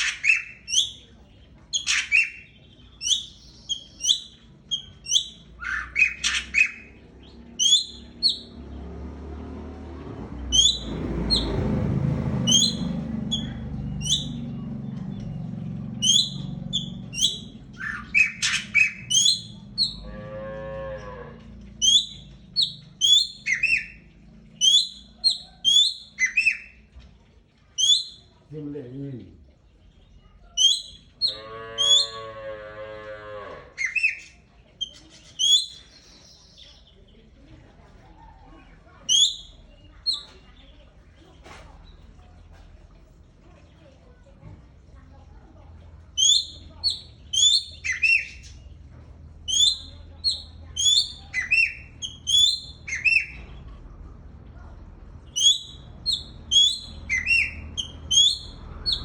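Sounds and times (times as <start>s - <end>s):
songbird singing whistled phrases: 0.0s - 1.1s, 1.7s - 8.6s, 10.5s - 11.6s, 12.4s - 15.4s, 16.0s - 20.0s, 21.8s - 26.8s, 27.8s - 28.4s, 30.5s - 32.2s, 33.8s - 36.9s, 39.1s - 40.5s, 46.1s - 48.6s, 49.4s - 53.5s, 55.3s - 59.0s
birds chirping sharply: 0.0s - 20.3s, 21.0s - 32.5s, 33.8s - 37.6s, 38.4s - 43.9s, 45.3s - 59.0s.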